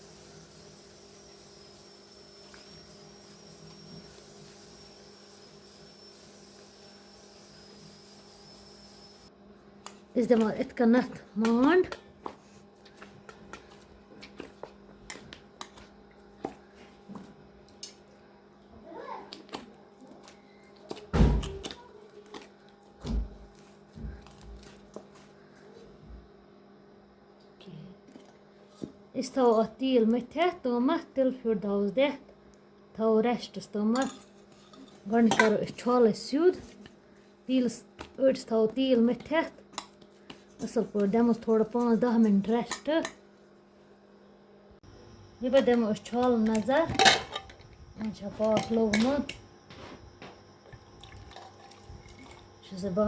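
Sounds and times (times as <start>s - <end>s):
electrical hum: 0.0s - 53.0s
dough kneaded by hand thumps: 9.8s - 17.6s.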